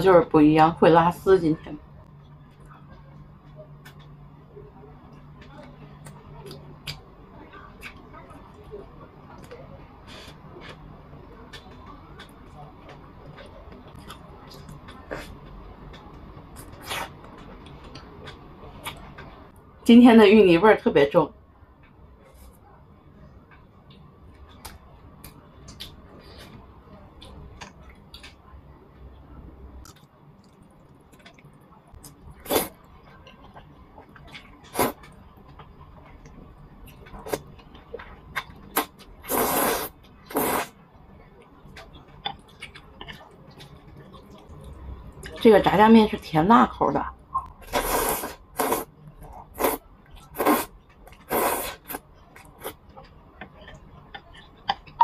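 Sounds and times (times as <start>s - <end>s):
slurping noodles: 34.7s - 35.1s, 38.7s - 40.7s, 47.6s - 52.0s.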